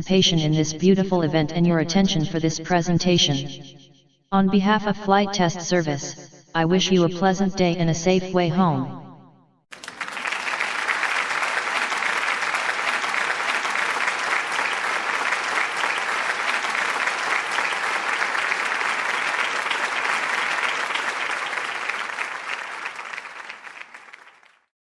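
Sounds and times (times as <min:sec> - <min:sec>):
audience applause: 0:09.7 - 0:24.7.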